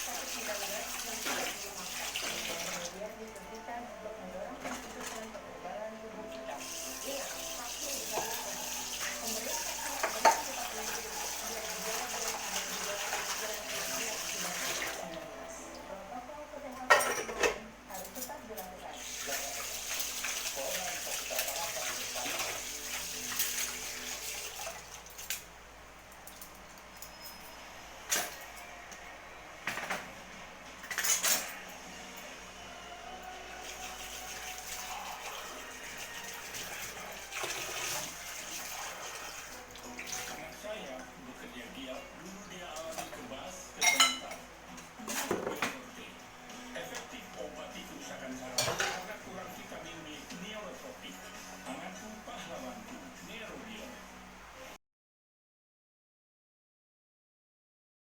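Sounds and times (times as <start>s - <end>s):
tap water running into sink: 0.0s - 3.4s, 6.4s - 15.2s, 19.0s - 25.5s, 33.6s - 41.0s
water rushing: 33.5s - 42.0s.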